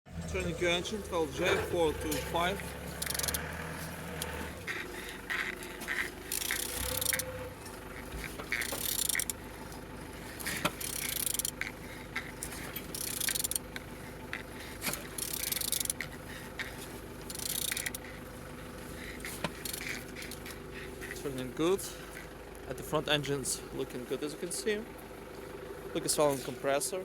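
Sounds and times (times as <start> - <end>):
engine turned over with wrench: 0.1 - 27.0
scattered metallic clicks: 0.3 - 9.4, 10.4 - 18.2, 19.1 - 21.4.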